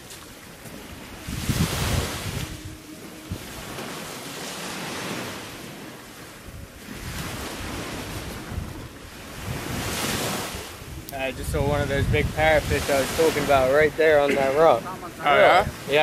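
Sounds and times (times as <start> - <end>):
waves washing against rocks: 0.0 - 16.0
wind buffeting microphone: 0.0 - 16.0.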